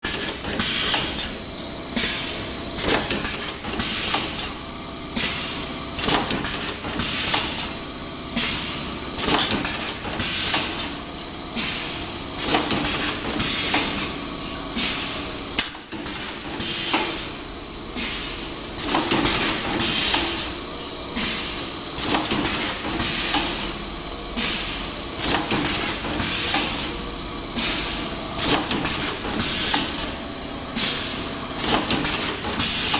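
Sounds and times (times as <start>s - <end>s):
machine clanking: 30.8s - 32.9s.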